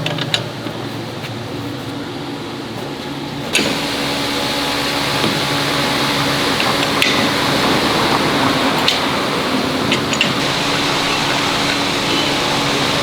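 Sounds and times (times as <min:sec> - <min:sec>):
machine hum: 0:02.1 - 0:13.0
loud hiss: 0:03.5 - 0:13.0.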